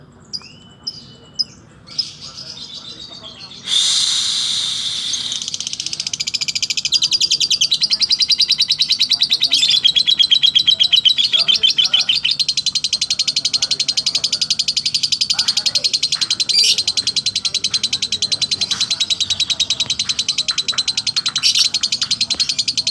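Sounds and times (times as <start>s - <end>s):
bird rapid chattering trill: 0.4s - 22.9s
bird harsh burst: 3.6s - 5.9s
bird short chirps: 3.6s - 6.4s, 18.6s - 22.6s.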